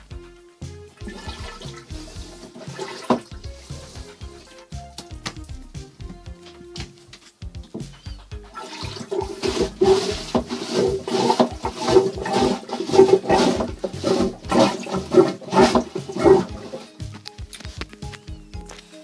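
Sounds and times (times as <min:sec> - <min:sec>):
water gurgling through bowl: 0:01.0 - 0:03.6, 0:08.6 - 0:16.9
toilet lever pump strokes: 0:01.0 - 0:04.2, 0:08.6 - 0:16.9.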